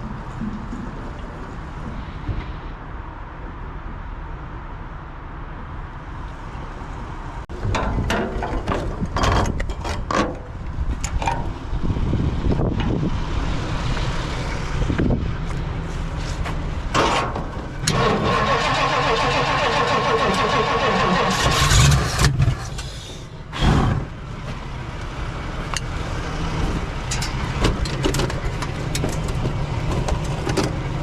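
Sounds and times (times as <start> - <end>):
knocks and clatter of car work: 7.5 - 11.6, 16.4 - 18.0, 26.6 - 31.0
car engine starting: 16.9 - 31.0.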